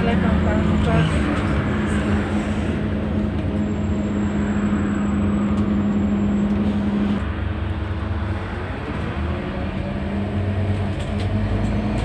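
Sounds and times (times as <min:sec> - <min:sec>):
bus diesel engine running: 0:00.0 - 0:12.0
engine whine: 0:00.0 - 0:12.0.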